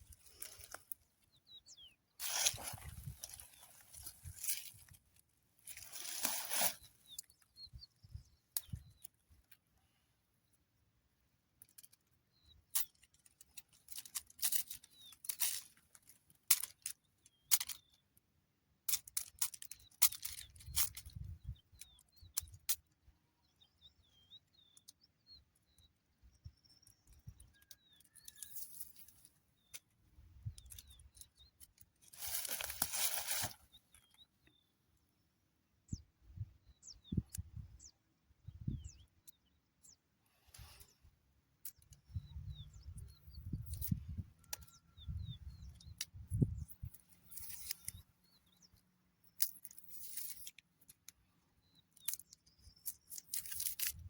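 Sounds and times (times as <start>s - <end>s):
handling clicks and rustles: 0.0s - 1.6s, 2.2s - 7.8s, 11.5s - 18.1s, 27.1s - 34.2s, 40.5s - 54.0s
small birds chirping: 0.0s - 54.0s.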